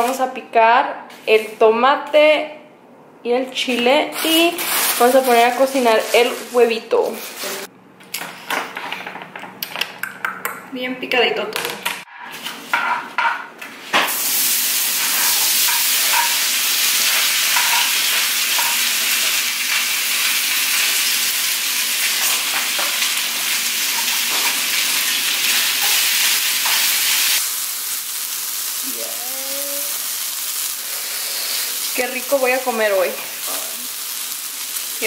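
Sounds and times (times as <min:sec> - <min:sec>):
food sizzling in hot oil: 0:14.0 - 0:35.0.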